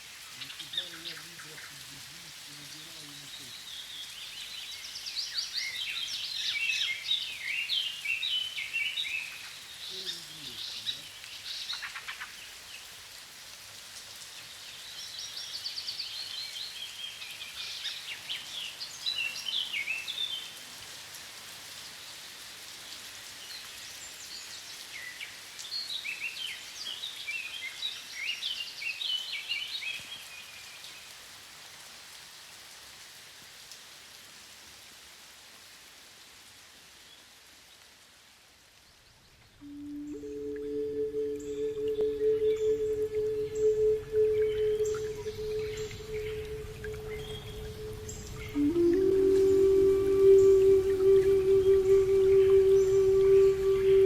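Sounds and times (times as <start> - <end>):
steady background hiss: 0.0 - 30.7, 35.0 - 54.0
songbird singing: 0.1 - 13.0, 39.2 - 54.0.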